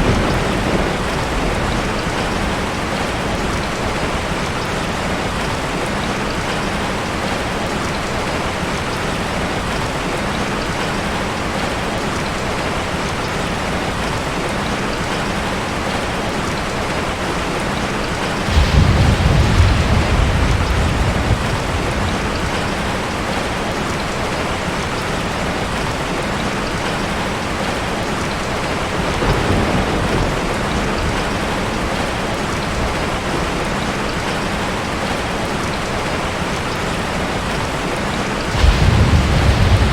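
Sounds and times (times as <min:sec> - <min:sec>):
thunder rumbling: 0:00.0 - 0:04.6, 0:18.4 - 0:23.6, 0:28.9 - 0:33.7, 0:38.4 - 0:39.9
heavy rain falling: 0:00.0 - 0:39.9.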